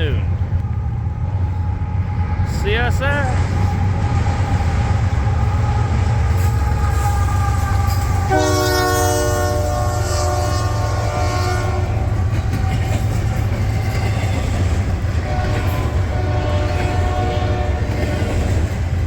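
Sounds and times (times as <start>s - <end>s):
freight train passing: 0.0s - 19.0s
train air horn: 3.7s - 14.6s, 15.2s - 18.4s.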